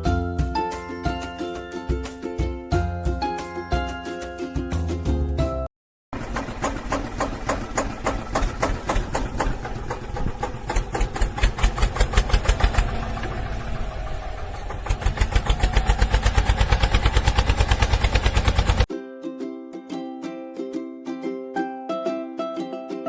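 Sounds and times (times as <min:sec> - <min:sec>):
engine chugging: 0:06.1 - 0:18.9.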